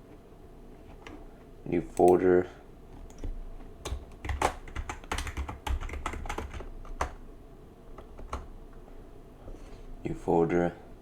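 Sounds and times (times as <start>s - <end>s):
computer keyboard typing: 3.0s - 7.2s, 8.0s - 8.5s.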